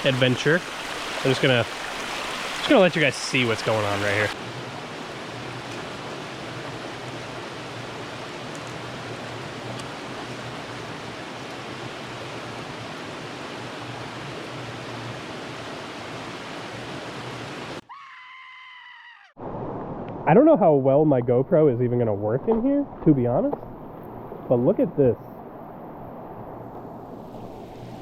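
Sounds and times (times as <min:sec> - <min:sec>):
stream water flowing: 0:00.0 - 0:17.8.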